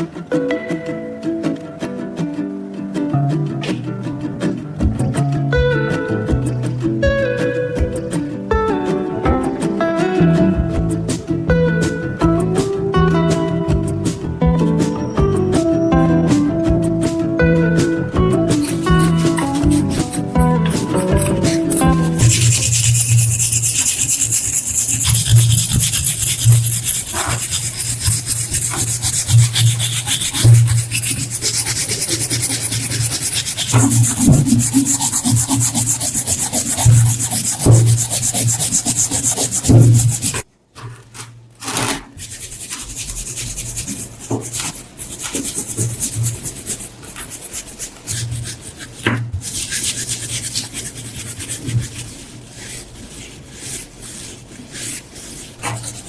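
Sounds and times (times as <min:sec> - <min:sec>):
scraping on rusty metal: 0:18.5 - 0:56.0.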